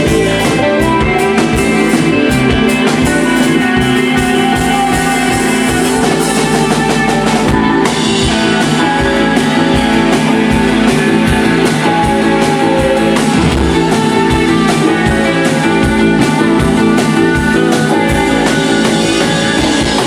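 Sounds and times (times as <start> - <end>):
electric guitar chords: 0.0 - 20.0
drum beat: 12.2 - 15.4.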